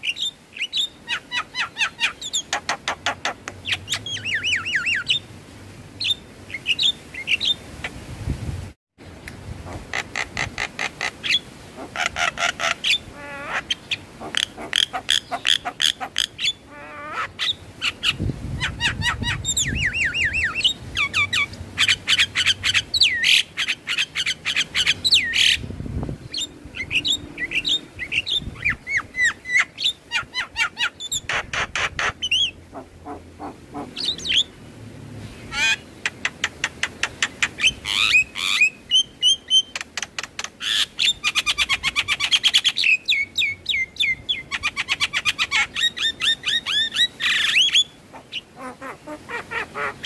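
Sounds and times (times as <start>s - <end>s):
bird chattering and whistling: 0.0s - 5.2s, 9.9s - 25.6s, 26.3s - 34.5s.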